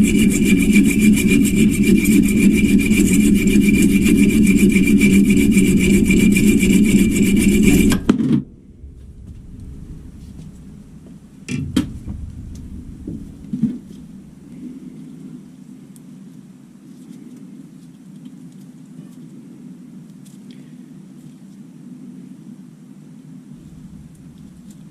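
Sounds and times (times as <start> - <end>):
lathe tool cutting with whine: 0.0 - 8.1
steady machine hum: 0.0 - 14.9, 23.6 - 24.9
sharp knocks: 0.3 - 14.5.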